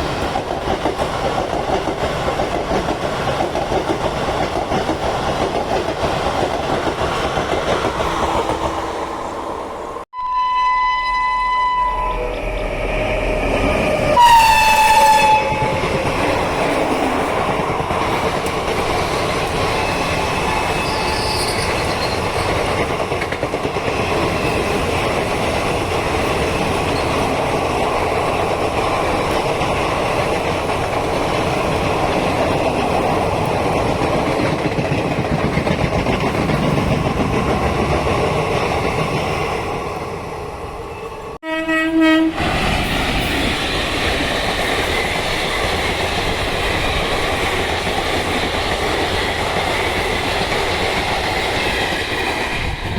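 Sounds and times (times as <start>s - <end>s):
train rumble and clatter: 0.0s - 10.1s, 12.3s - 41.4s, 42.2s - 52.9s
train horn blast: 10.1s - 16.0s, 41.4s - 42.6s.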